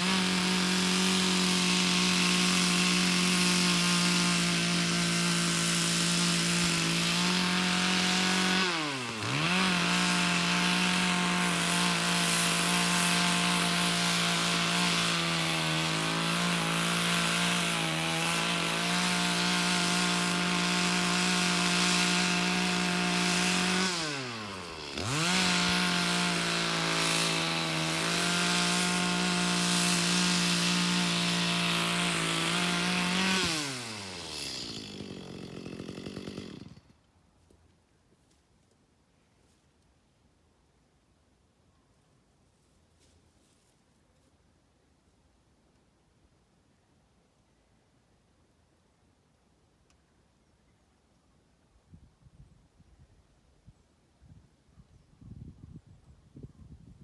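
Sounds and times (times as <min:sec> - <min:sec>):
chainsaw cutting logs: 0:00.0 - 0:37.2.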